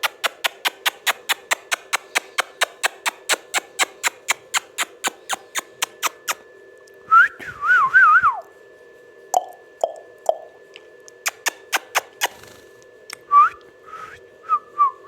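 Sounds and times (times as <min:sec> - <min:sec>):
sharp evenly spaced clicks: 0:00.0 - 0:06.4, 0:09.4 - 0:12.4.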